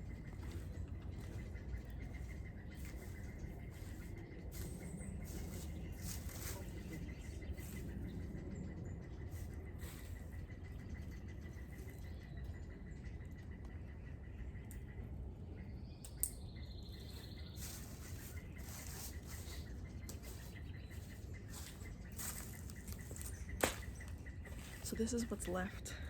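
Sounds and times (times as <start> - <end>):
low outdoor rumble: 0.0 - 26.0
rustling and scuffing: 2.2 - 7.9, 17.1 - 25.6.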